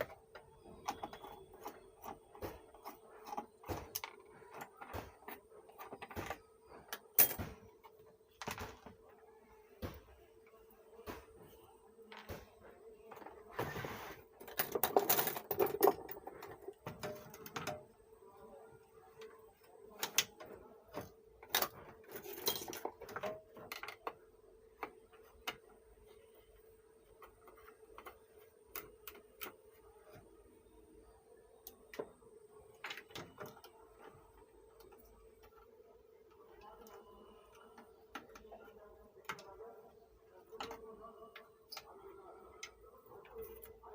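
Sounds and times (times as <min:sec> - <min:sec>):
faint steady hum: 0:00.0 - 0:43.9
tools clicking and scraping metal: 0:14.4 - 0:17.8, 0:21.4 - 0:24.2.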